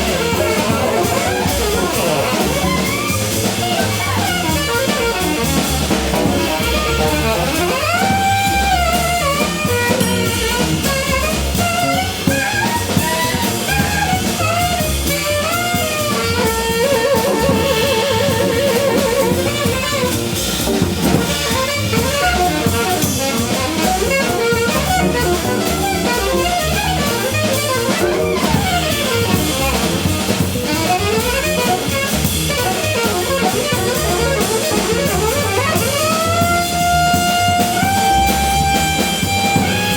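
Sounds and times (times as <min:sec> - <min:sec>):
bending melodic lead line: 0:00.0 - 0:08.6, 0:16.8 - 0:39.9
live jazz combo: 0:00.0 - 0:39.9.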